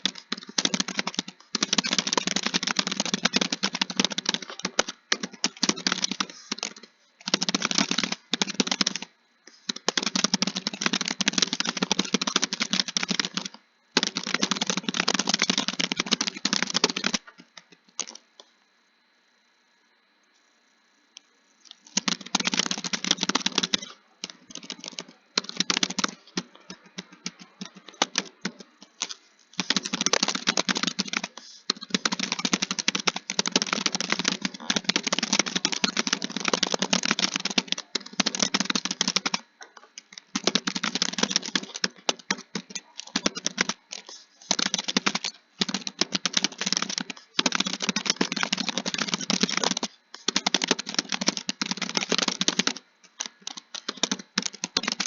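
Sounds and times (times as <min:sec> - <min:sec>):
fast keyboard typing: 0:00.0 - 0:18.2, 0:21.8 - 0:55.0.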